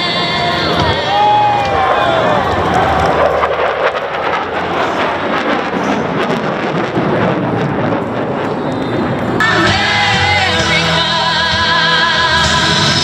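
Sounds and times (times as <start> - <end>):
music with singing: 0.0 - 1.8, 9.4 - 13.0
fighter jets roaring overhead: 0.0 - 13.0.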